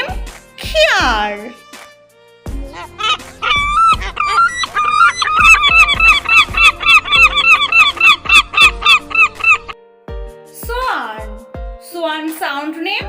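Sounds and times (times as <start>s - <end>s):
seagull calling: 2.7s - 9.8s.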